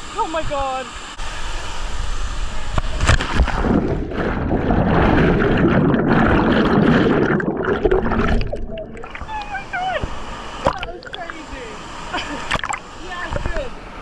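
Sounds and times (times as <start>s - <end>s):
muffled underwater bubbling: 2.8s - 9.8s, 10.6s - 11.6s, 12.5s - 13.5s.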